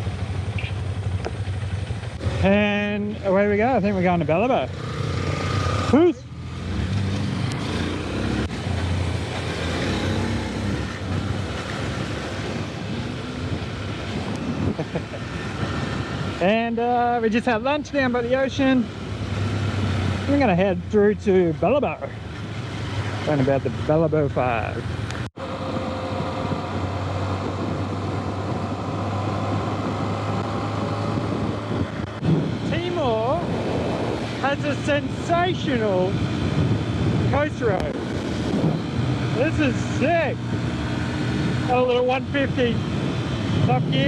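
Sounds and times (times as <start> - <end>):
motorcycle engine running: 0.0 - 17.2
road noise: 0.0 - 44.0
wind noise: 6.7 - 21.0, 24.8 - 44.0.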